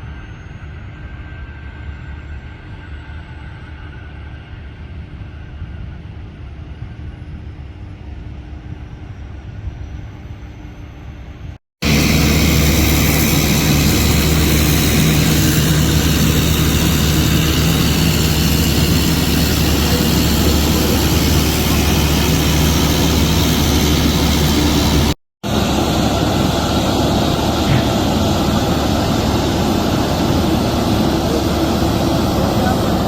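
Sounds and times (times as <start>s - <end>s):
jet engine rumble and whine: 0.0s - 33.0s
low hum: 11.8s - 33.0s.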